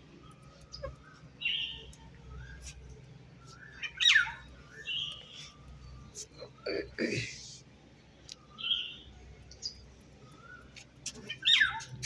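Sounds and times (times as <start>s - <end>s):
parrot chirps and squawks: 0.7s - 1.0s, 3.8s - 4.4s, 11.2s - 11.9s.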